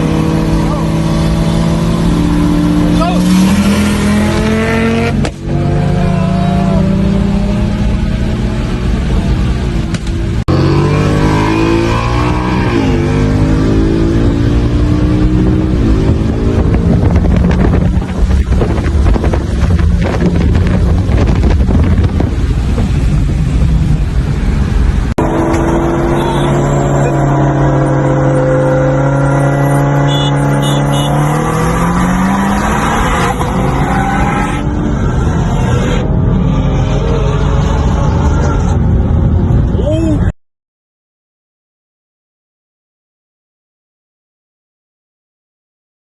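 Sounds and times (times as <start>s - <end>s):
engine revving: 0.0s - 9.0s, 10.4s - 17.8s, 25.2s - 38.8s
car engine accelerating hard: 0.0s - 39.7s.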